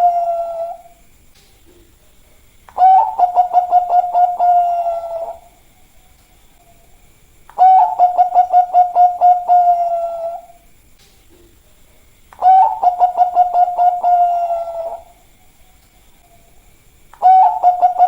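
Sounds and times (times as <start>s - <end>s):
dove cooing: 0.0s - 1.0s, 2.7s - 5.6s, 7.5s - 10.6s, 12.4s - 15.3s, 17.2s - 18.0s.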